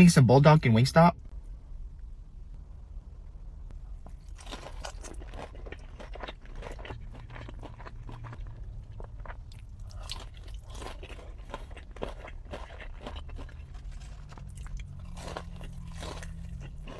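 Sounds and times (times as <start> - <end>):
steady low hum: 0.0 - 16.9
person chewing crunchy food: 3.9 - 16.9.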